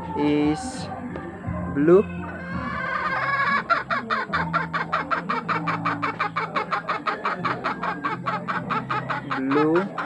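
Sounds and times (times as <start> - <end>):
bird clucking rapidly: 2.6 - 10.0.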